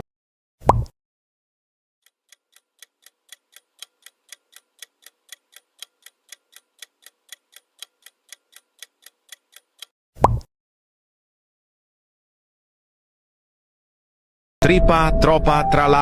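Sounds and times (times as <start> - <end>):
clock ticking: 2.0 - 9.9.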